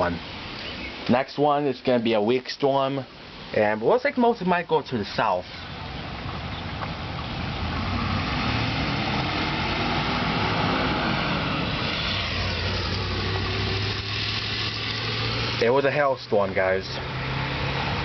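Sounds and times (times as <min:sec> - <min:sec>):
low engine hum: 0:05.5 - 0:15.7, 0:16.7 - 0:18.0
motor vehicle passing: 0:05.5 - 0:18.0.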